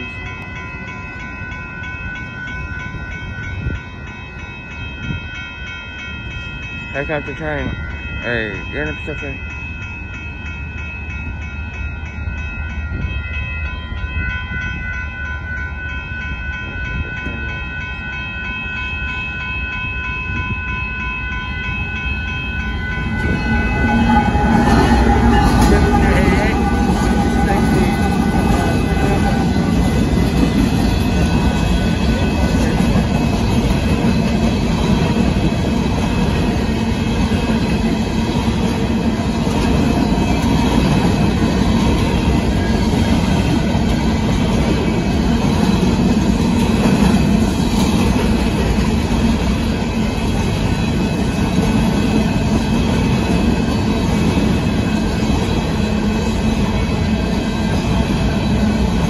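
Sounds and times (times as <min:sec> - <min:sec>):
train wheels rumbling on rails: 0:00.0 - 0:59.0
clickety-clack from rail joints: 0:23.0 - 0:59.0.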